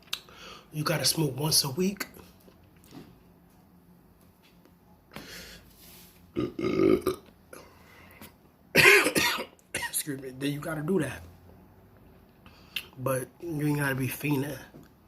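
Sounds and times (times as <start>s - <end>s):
man burping loudly: 6.3s - 7.6s.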